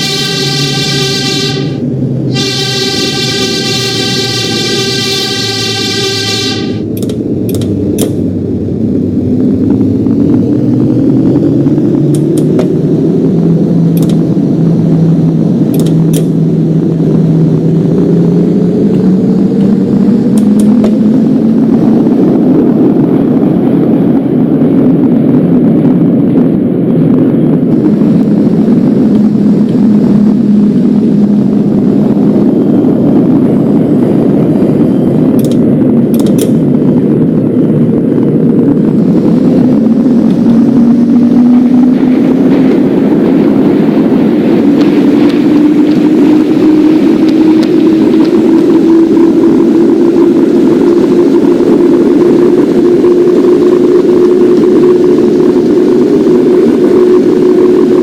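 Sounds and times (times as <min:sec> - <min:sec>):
train motor whine: 0:00.0 - 0:26.0, 0:27.0 - 0:58.0
subway train rumbling on tracks: 0:00.0 - 0:58.0.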